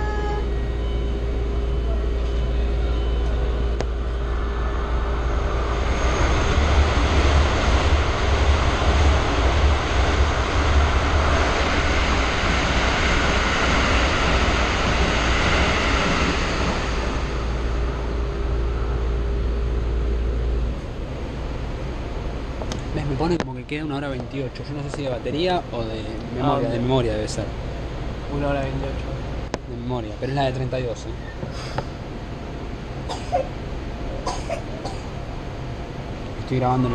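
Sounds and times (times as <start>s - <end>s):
train carriage hum: 0.0s - 36.9s
broad rushing noise: 3.5s - 36.9s.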